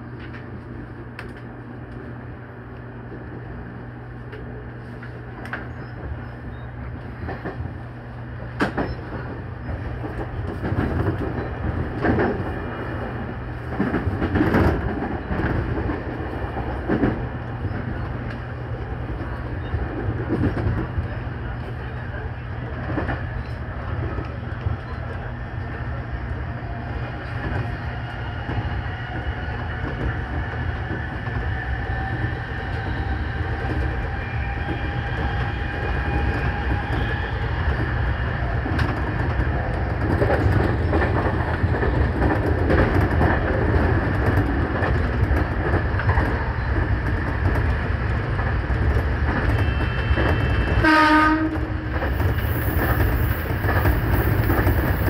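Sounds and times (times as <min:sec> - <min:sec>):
train wheels rumbling on rail: 0:00.0 - 0:55.0
rail-joint clicks: 0:04.2 - 0:07.8, 0:08.4 - 0:12.5
train horn blast: 0:49.5 - 0:51.9.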